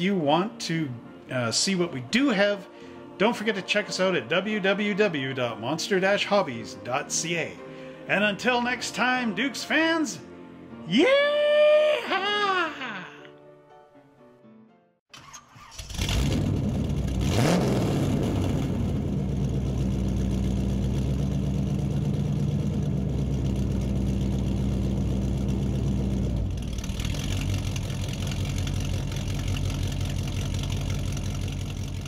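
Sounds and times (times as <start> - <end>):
car engine revving and running: 15.8 - 32.0.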